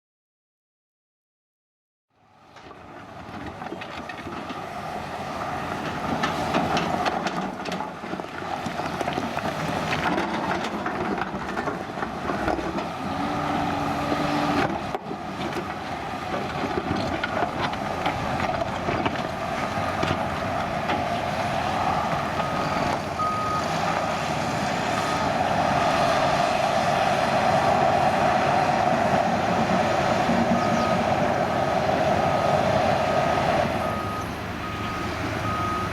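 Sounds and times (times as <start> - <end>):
construction machinery and trucks: 2.1 - 35.9
reversing alarm beeps: 21.9 - 23.7, 25.0 - 26.0, 30.5 - 31.7, 32.3 - 35.9.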